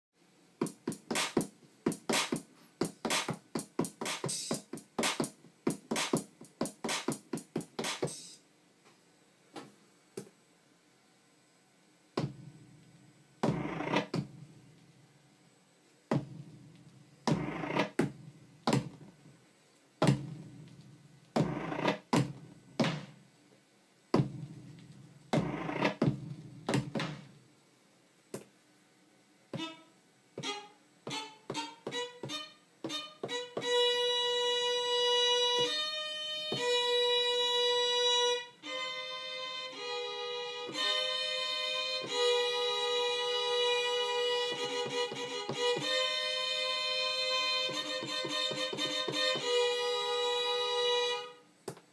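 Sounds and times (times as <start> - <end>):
percussive electronic hits: 12.2 - 12.6, 13.4 - 14.6, 16.1 - 19.1, 20.0 - 20.8, 21.4 - 23.2, 24.1 - 27.3
held string-like synth notes: 29.6 - 51.4.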